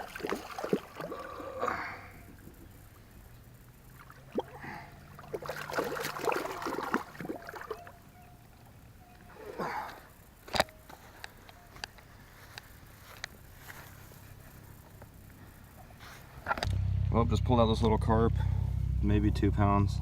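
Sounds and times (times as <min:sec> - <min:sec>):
pond water splashing: 0:00.0 - 0:11.4.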